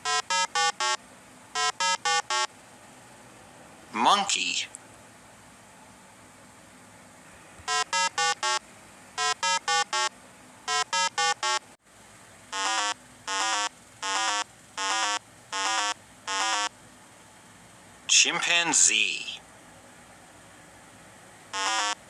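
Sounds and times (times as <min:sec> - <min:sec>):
monkey hooting: 0:12.6 - 0:16.7, 0:21.5 - 0:22.0.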